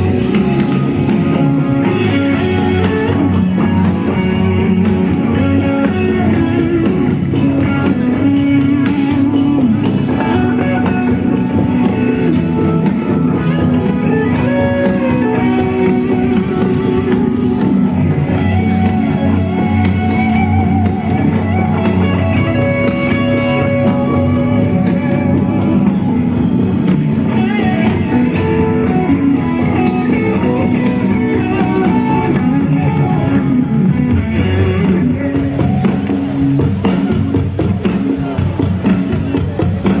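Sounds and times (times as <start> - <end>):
guitar bending held notes: 0.0 - 40.0
rock band music: 0.0 - 40.0.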